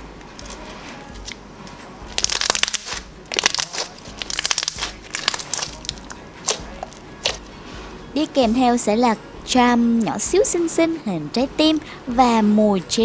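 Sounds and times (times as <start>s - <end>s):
slime crackling clicks and pops: 2.1s - 7.4s.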